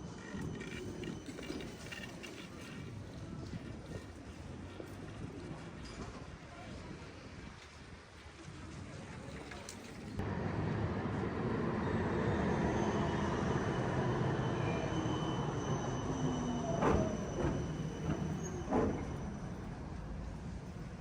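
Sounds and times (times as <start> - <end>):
tram wheels rumbling on rails: 0.0 - 21.0
high wheel squeal: 11.8 - 19.8
tram knocks: 16.8 - 19.2.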